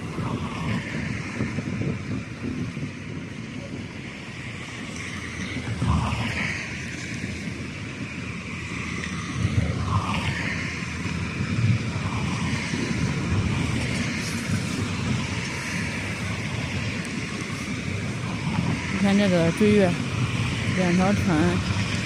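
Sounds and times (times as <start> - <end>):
wind buffeting microphone: 0.0 - 22.0
ship diesel engines rumbling: 15.0 - 22.0.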